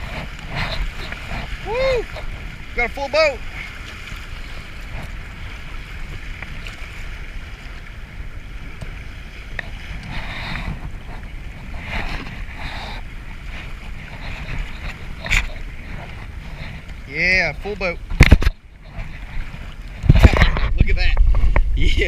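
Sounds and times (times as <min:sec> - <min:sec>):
river water rushing: 0:00.0 - 0:08.6
wind buffeting microphone: 0:00.0 - 0:22.0.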